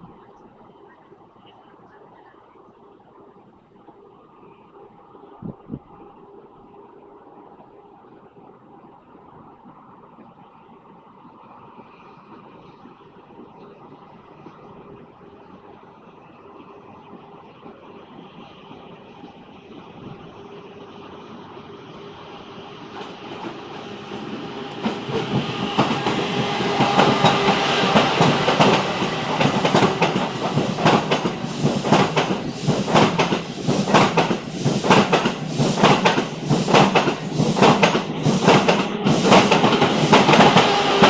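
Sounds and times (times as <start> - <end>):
train running on rails: 0.0 - 41.0
clickety-clack of wheels: 22.9 - 41.0.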